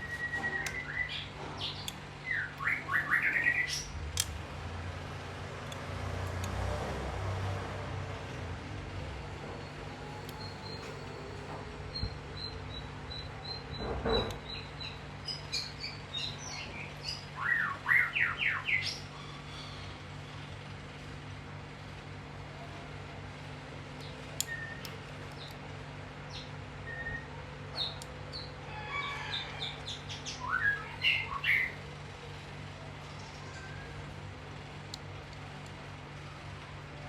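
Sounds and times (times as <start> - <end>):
steady low hum: 0.0 - 28.8.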